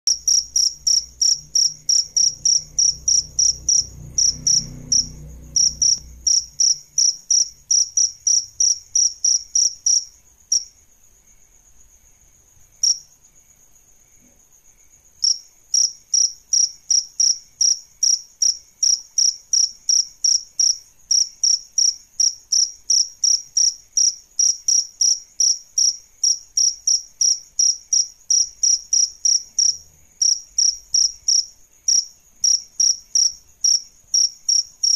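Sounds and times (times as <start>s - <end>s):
cricket chirping: 0.1s - 34.9s.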